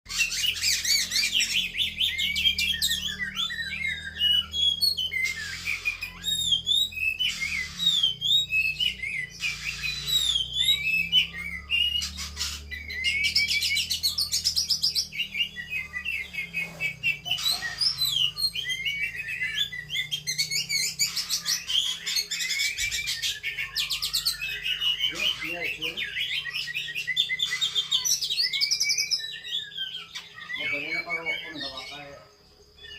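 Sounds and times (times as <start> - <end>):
bird singing chirps and whistles: 0.1 - 32.9.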